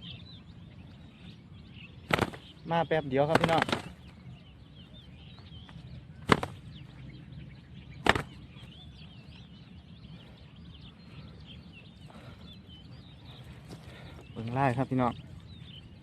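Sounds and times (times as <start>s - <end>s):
birds chirping faintly: 0.0s - 16.0s.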